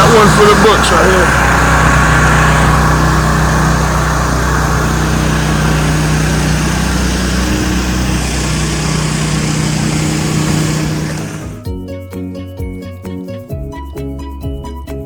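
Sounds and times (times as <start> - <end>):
engine running steadily: 0.0 - 11.8.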